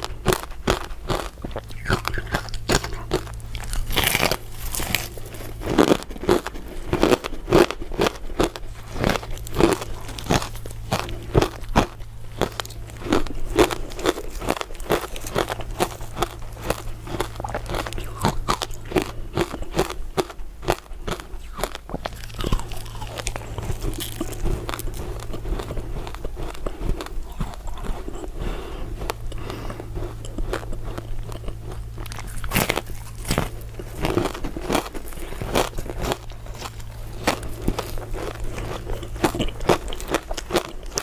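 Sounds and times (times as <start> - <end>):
chewing: 0.0 - 41.0
crunching ice dessert: 0.0 - 41.0.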